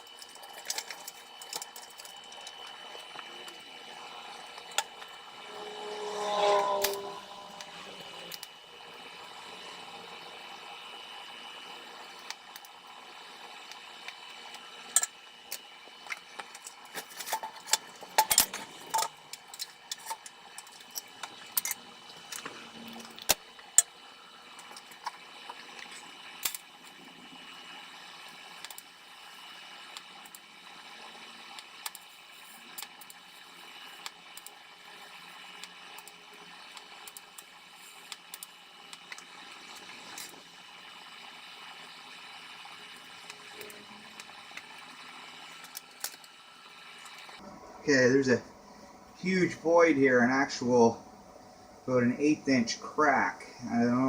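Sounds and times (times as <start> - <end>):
welding crackles and pops: 0.0 - 8.6, 13.6 - 47.4
welding arc hiss and whine: 0.0 - 54.0.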